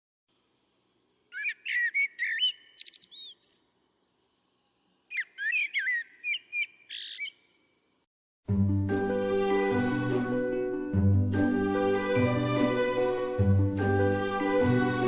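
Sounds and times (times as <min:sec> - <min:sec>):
songbird singing: 0:00.3 - 0:08.1.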